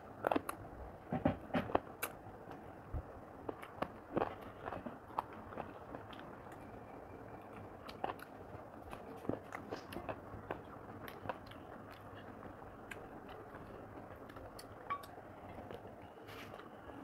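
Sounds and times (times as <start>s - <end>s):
person chewing food: 0.0s - 0.6s, 1.2s - 2.7s, 3.4s - 16.8s.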